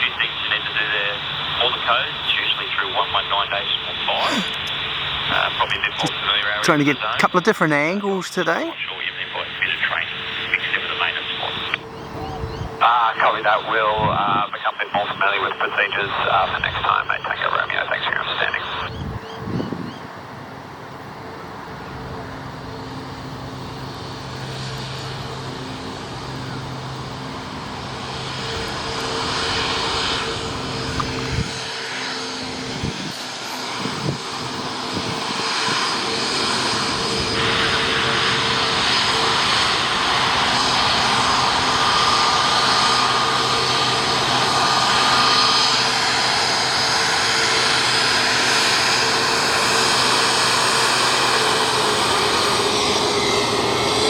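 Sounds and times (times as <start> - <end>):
jet engines whining: 20.6 - 54.0.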